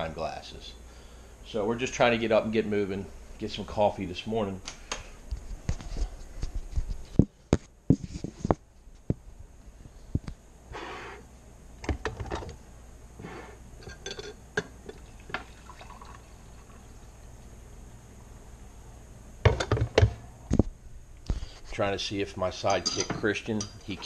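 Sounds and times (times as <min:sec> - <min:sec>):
liquid pouring: 0:14.9 - 0:17.0.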